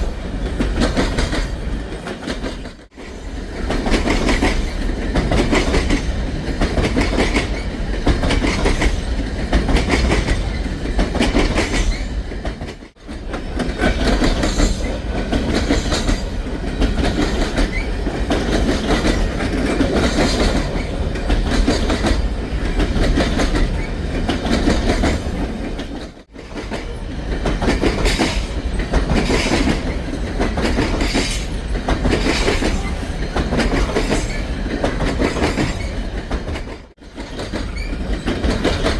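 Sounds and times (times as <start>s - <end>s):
train wheels clicking over rail joints: 0.0s - 38.9s.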